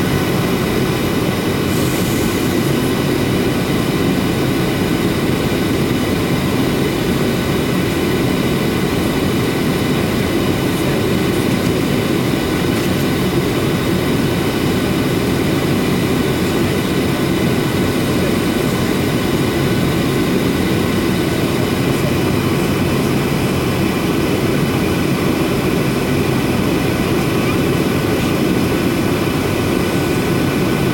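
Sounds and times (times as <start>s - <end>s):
airplane cabin engine rumble: 0.0s - 30.9s.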